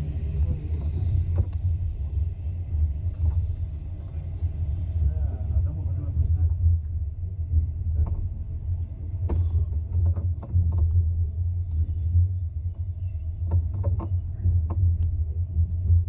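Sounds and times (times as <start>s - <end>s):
moving train rumble: 0.0s - 16.0s
light clicks and knocks: 9.2s - 11.0s, 12.7s - 15.9s.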